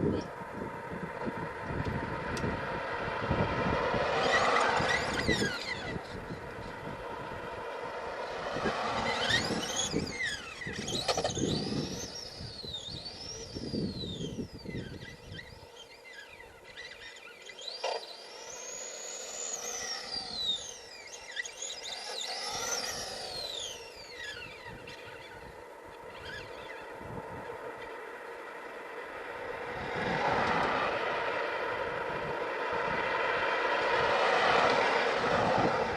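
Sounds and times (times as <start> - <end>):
electric motor whine: 0.0 - 35.9.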